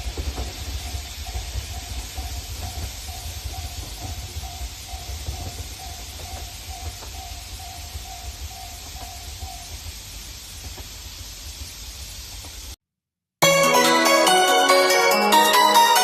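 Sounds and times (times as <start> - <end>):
train rumble and hiss: 0.0 - 12.8.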